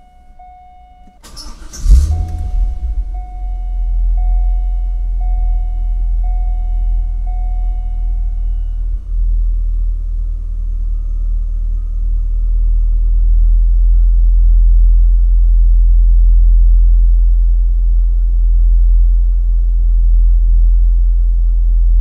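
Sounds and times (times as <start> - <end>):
high beep: 0.0 - 9.2
car engine low rumble: 0.0 - 22.0.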